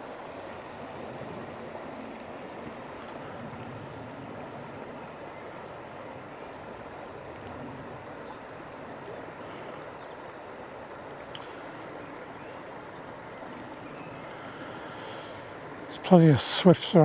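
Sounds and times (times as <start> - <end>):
river rushing: 0.0 - 17.0
small birds twittering: 5.0 - 17.0.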